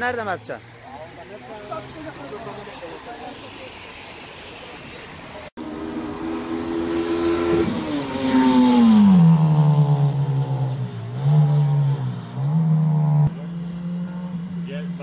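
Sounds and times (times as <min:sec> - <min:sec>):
car engine revving past: 0:05.7 - 0:15.0.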